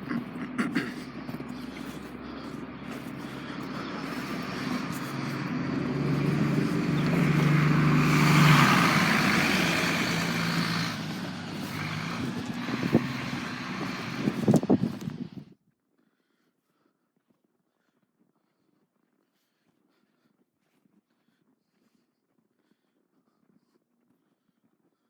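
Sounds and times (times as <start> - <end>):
vehicle driving past: 0.0 - 15.4.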